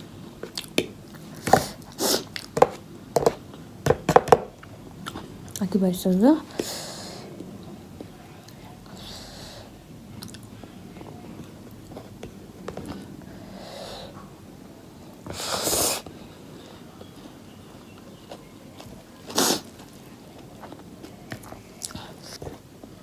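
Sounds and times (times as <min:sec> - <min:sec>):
faint chewing: 0:00.0 - 0:02.8, 0:04.6 - 0:05.6, 0:10.2 - 0:13.3, 0:15.2 - 0:23.0
person sniffing hard: 0:01.5 - 0:02.3, 0:15.3 - 0:16.1, 0:19.3 - 0:19.7.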